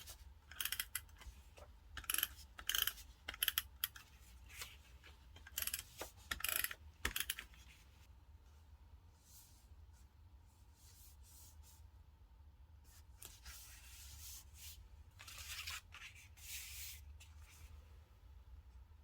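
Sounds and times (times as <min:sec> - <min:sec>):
paper rustling and scraping: 0:04.0 - 0:05.2, 0:13.2 - 0:17.8.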